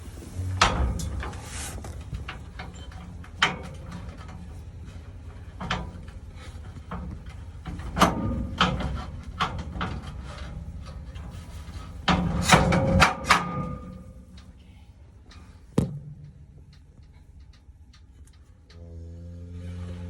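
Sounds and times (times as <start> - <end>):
knocks and clattering bangs: 0.5 - 14.5.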